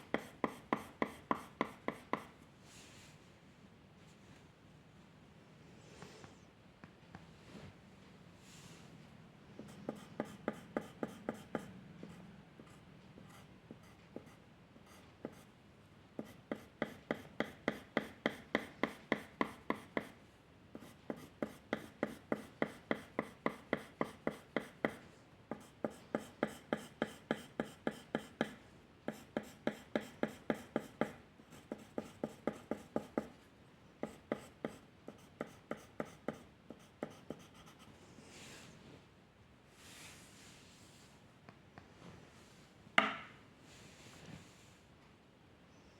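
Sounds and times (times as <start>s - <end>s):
drawing tool strokes on paper: 9.6s - 11.7s, 16.2s - 20.1s, 20.8s - 33.3s, 34.0s - 37.9s.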